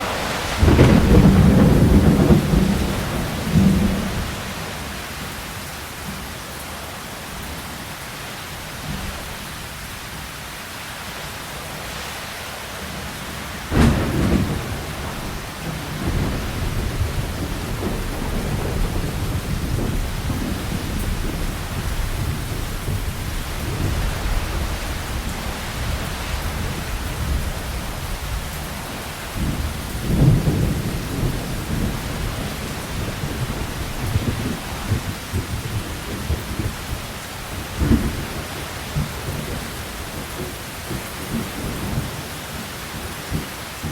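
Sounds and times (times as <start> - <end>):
thunderclap: 0.0 - 5.3, 13.6 - 28.7, 29.3 - 42.2
thunder rumbling: 0.0 - 5.4, 13.6 - 43.9
steady rain: 0.0 - 43.9.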